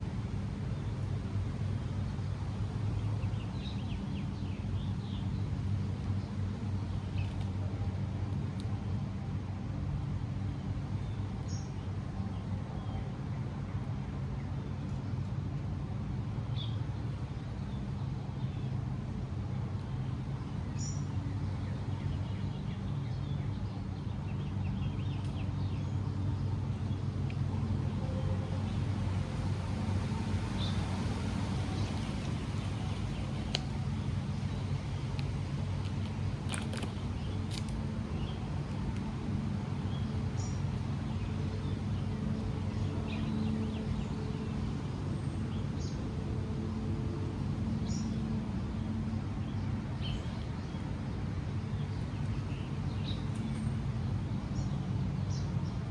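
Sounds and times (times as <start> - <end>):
low hum of distant traffic: 0.0 - 55.9
small birds chirping: 2.0 - 7.6, 19.8 - 46.0, 49.0 - 55.5.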